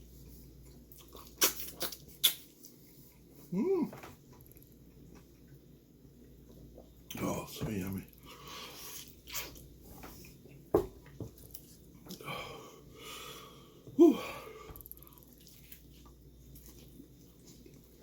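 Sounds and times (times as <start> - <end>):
man chewing: 0.1 - 3.8, 8.2 - 10.7, 11.4 - 18.0
man exclaiming whew: 14.0 - 14.4.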